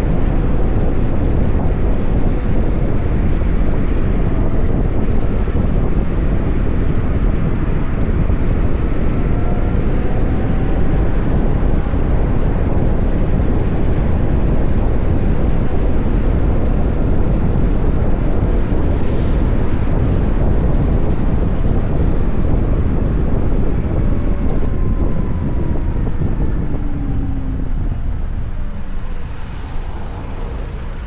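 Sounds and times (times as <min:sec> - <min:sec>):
wind rushing over microphone: 0:00.0 - 0:31.0.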